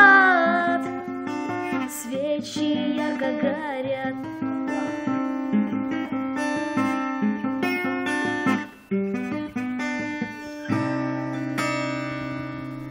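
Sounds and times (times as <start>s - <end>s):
acoustic guitar chord ringing: 0.0s - 12.9s
acoustic guitar picked notes: 0.0s - 12.9s.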